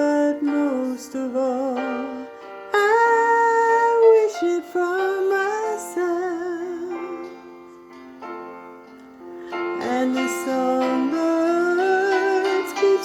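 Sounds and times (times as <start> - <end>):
soft plucked accompaniment: 0.0 - 13.0
woman singing with vibrato: 2.8 - 7.5, 9.8 - 13.0.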